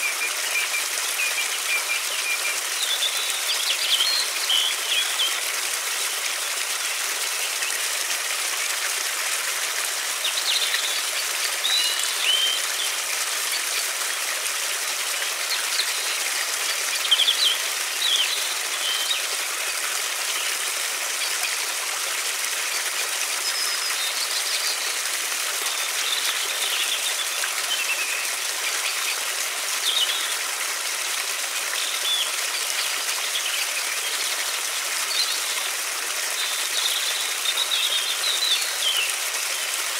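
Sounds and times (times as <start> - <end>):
river water flowing: 0.0 - 39.9
small birds chirping: 10.1 - 14.2, 15.0 - 21.7, 23.4 - 30.4.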